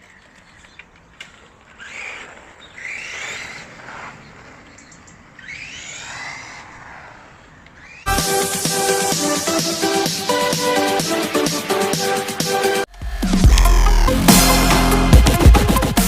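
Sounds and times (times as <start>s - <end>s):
rc car electric motor whining: 1.3s - 8.1s.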